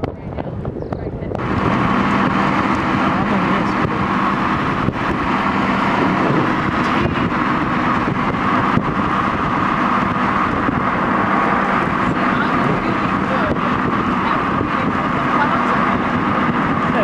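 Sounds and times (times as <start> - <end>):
car road and wind noise: 0.0 - 17.0.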